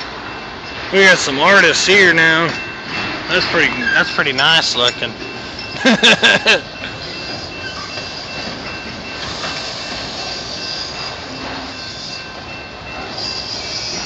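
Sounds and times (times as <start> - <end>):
freight train rumbling past: 0.0 - 14.0
high-pitched wheel squeal: 9.2 - 12.3, 13.1 - 14.0.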